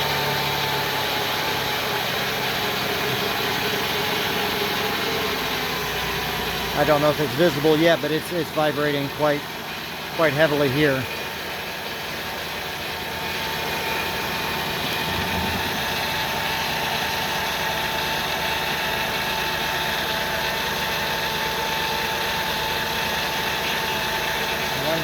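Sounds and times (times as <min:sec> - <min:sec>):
engine idling roughly: 0:00.0 - 0:25.0
thin steady whine: 0:13.0 - 0:18.8.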